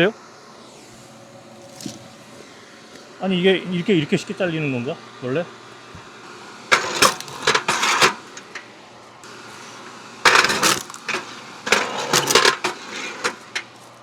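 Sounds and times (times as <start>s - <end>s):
logs cracking apart: 0.9s - 2.4s, 10.3s - 11.2s
split wood clattering down: 1.6s - 2.4s, 6.7s - 14.0s.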